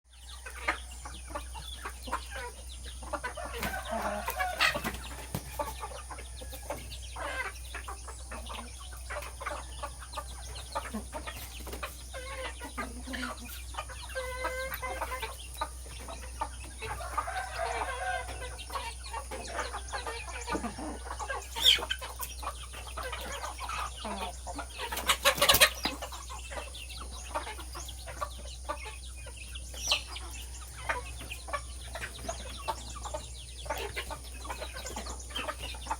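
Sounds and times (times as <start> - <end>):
chickens clucking: 0.1 - 35.9.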